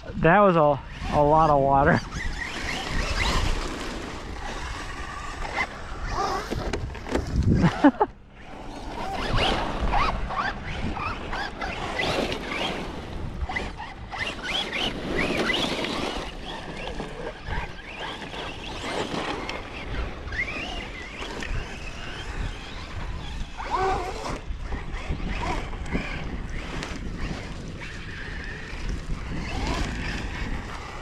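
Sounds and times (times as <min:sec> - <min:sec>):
steady rushing noise: 0:00.0 - 0:23.7
toy truck electric motors whining: 0:00.8 - 0:31.0.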